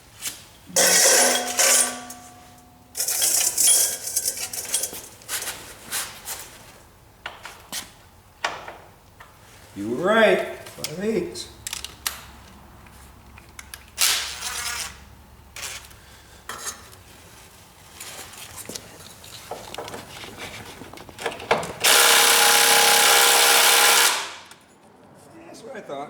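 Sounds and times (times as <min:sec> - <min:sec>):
metal tools scraping and clanking: 0:00.7 - 0:05.8.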